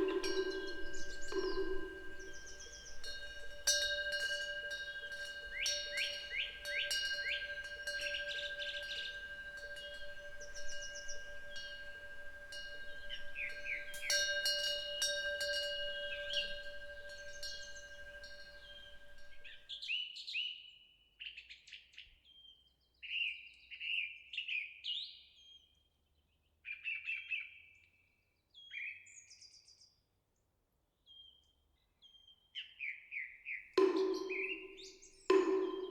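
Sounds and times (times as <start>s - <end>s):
metal eaves bells ringing: 0.0s - 19.7s, 33.8s - 35.9s
songbirds chirping: 0.0s - 19.7s, 33.8s - 35.9s.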